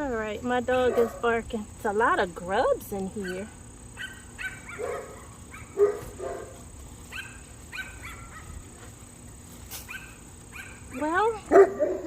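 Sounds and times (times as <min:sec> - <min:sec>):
dog barking: 0:00.7 - 0:01.3, 0:03.2 - 0:08.6, 0:09.9 - 0:12.0.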